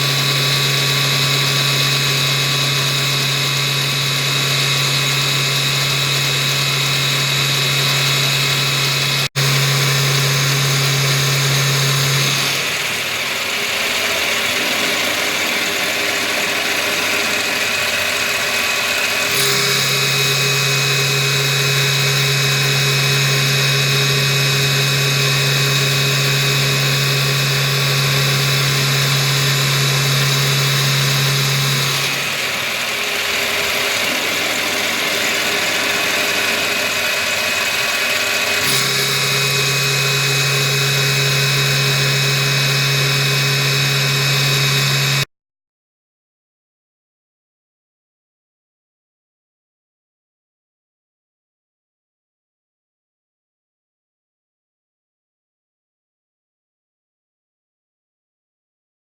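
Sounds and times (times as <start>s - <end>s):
milling machine cutting steel: 0.0s - 45.3s.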